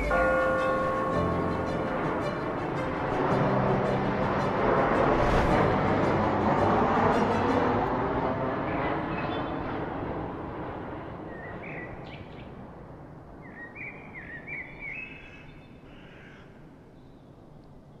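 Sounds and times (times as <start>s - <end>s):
bird chirping: 13.4s - 15.9s.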